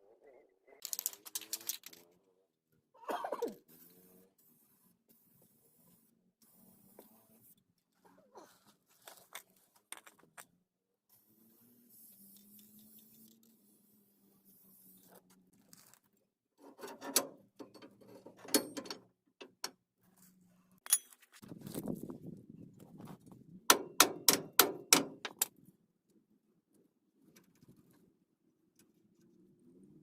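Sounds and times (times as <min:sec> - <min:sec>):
metal tools clinking: 0:20.8 - 0:21.4.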